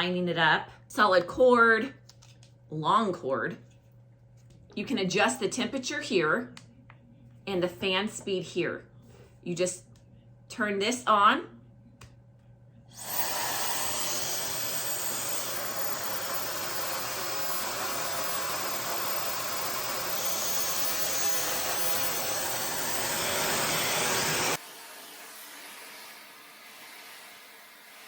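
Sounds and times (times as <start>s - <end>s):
hair dryer blowing: 13.0s - 28.0s.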